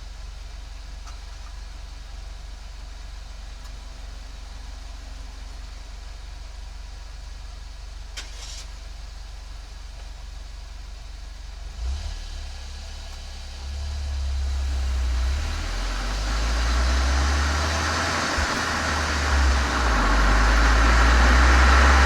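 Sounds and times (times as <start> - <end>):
car engine revving: 11.7 - 22.0.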